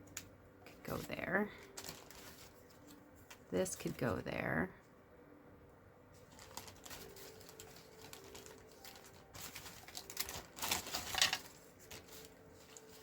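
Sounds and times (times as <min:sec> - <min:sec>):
cardstock rustling and clicking: 0:00.9 - 0:03.5, 0:06.2 - 0:13.0.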